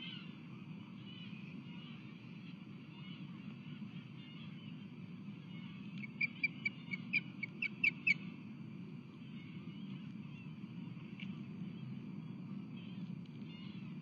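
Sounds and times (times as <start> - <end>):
low background rumble: 0.0 - 14.0
osprey whistled chirps: 6.0 - 8.2.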